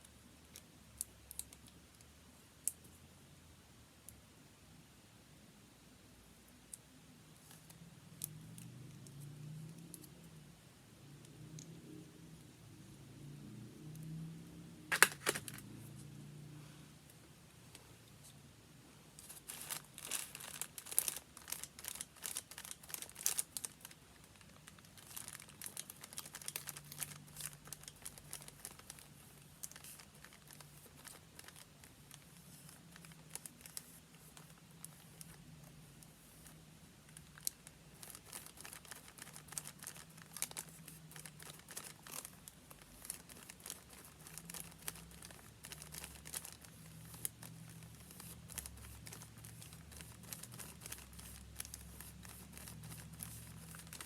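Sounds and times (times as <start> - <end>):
paper crinkling: 14.9 - 15.6, 19.2 - 54.0.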